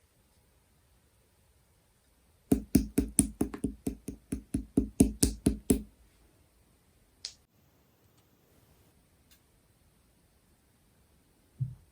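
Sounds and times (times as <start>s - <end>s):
sharp taps on hard object: 2.5s - 5.9s.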